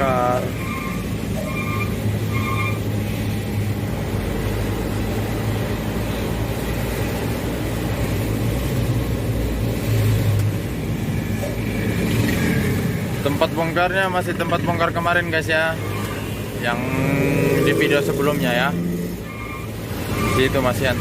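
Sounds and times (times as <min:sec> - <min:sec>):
road noise: 0:00.0 - 0:21.0.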